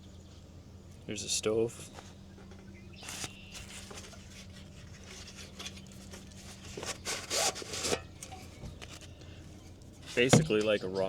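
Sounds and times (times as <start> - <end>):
camping gear rubbing and scraping: 3.0 - 9.2, 9.9 - 10.6.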